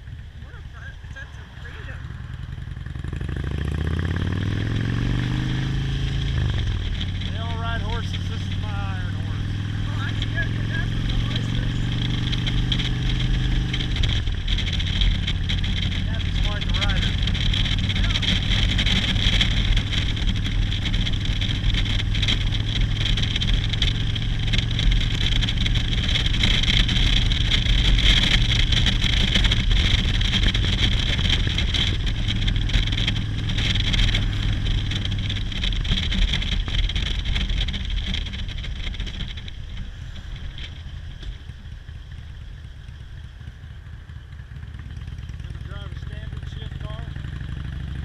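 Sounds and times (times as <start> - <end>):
motorcycle engine running: 0.0 - 48.0
wind and road noise: 0.0 - 48.0.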